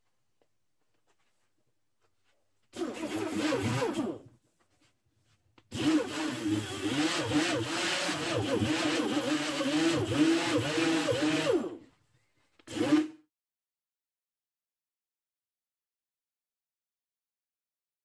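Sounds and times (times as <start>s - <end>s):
small motor running: 5.8s - 11.6s.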